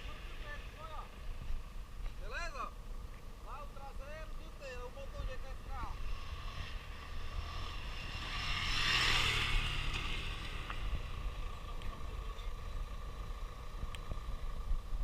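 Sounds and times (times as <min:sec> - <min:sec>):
motor vehicle passing: 0:04.7 - 0:15.0
wind rumble on microphone: 0:13.6 - 0:15.0.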